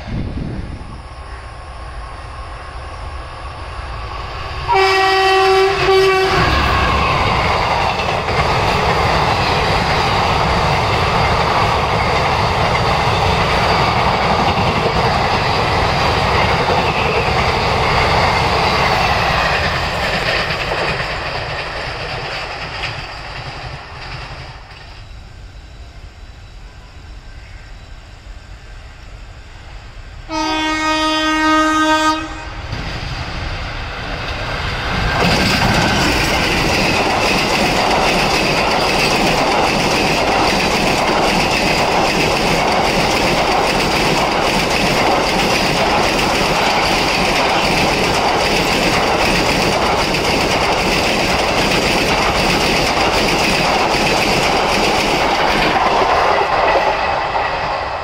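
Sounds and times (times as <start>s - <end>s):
train wheels clattering on rails: 4.2s - 25.2s, 32.7s - 58.0s
train horn blast: 4.7s - 7.4s, 30.3s - 32.7s.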